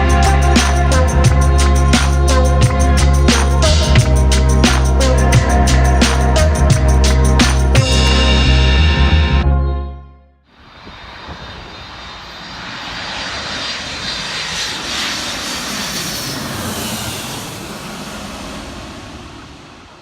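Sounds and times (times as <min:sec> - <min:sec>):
music: 0:00.0 - 0:10.4
steady rushing noise: 0:10.5 - 0:20.0.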